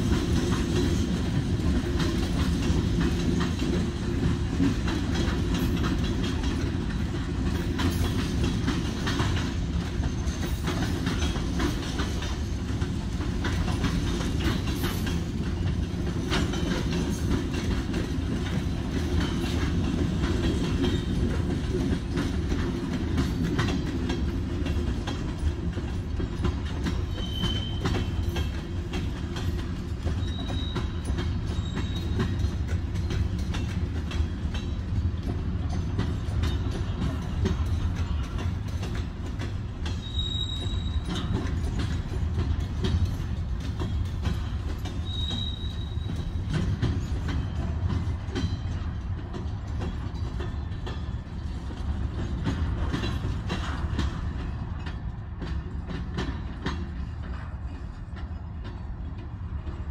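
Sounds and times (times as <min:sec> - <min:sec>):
train wheels rumbling on rails: 0:00.0 - 0:59.9
wheels clacking over rail joints: 0:00.0 - 0:59.9
high wheel squeals: 0:27.1 - 0:28.2, 0:30.2 - 0:32.2, 0:40.0 - 0:41.3, 0:45.0 - 0:46.4.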